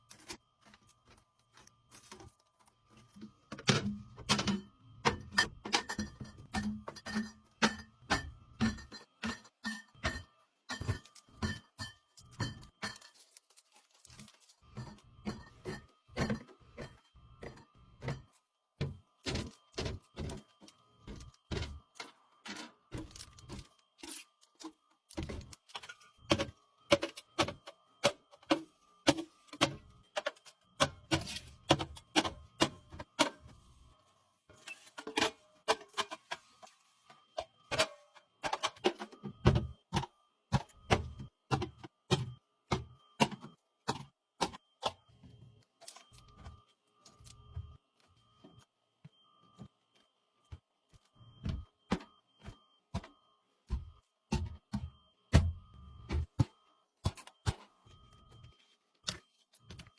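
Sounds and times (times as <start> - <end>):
cans and bottles knocking and clinking: 3.1 - 13.2, 14.2 - 23.7, 24.6 - 33.4, 37.1 - 45.0.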